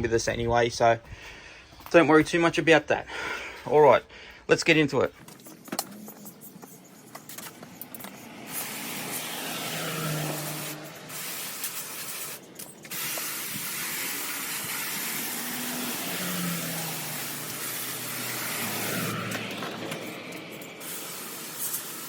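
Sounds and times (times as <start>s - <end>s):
water spraying from hose: 8.2s - 22.0s.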